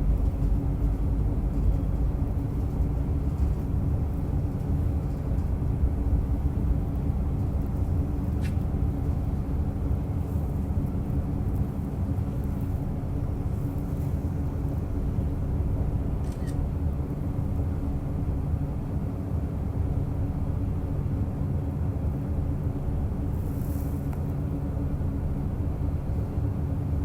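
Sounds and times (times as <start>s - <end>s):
wheels rumbling on rails: 0.0s - 16.2s
railcar engine drone: 0.0s - 27.0s.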